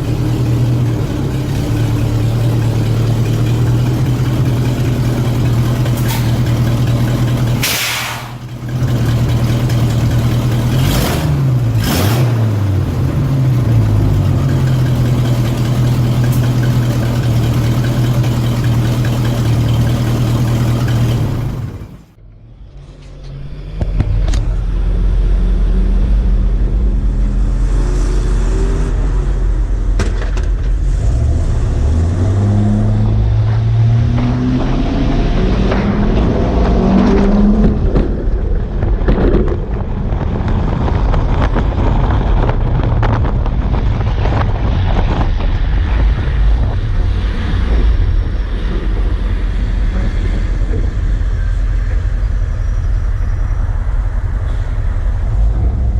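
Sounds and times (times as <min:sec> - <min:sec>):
heavy truck engine revving: 0:00.0 - 0:55.9
air hiss bursts: 0:07.6 - 0:08.4.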